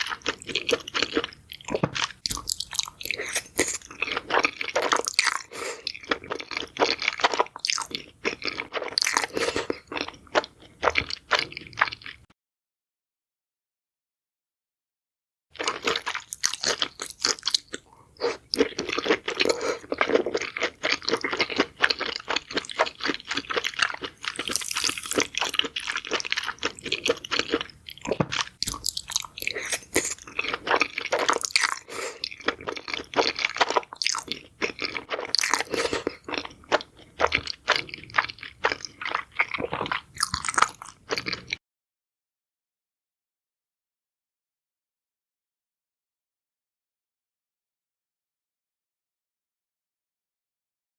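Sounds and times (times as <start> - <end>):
crunchy chewing of food: 0.0 - 12.3, 15.6 - 41.6.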